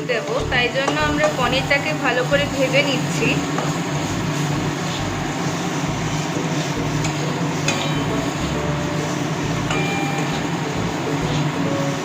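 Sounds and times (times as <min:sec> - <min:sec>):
cheese frying in oil: 0:00.0 - 0:12.0.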